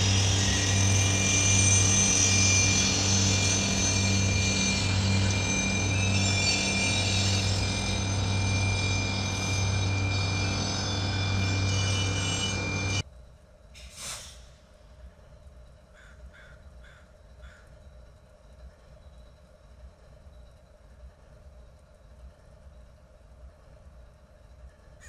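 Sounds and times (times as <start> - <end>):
rail maintenance train machinery: 0.0 - 25.0
crow cawing: 16.0 - 17.6.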